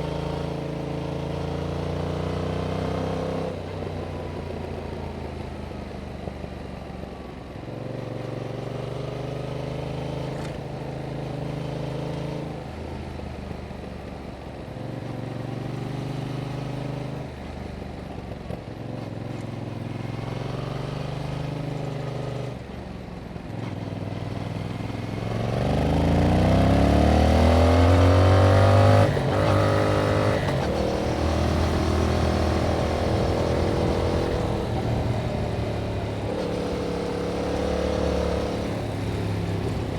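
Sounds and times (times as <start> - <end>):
motorcycle engine revving: 23.6 - 39.9.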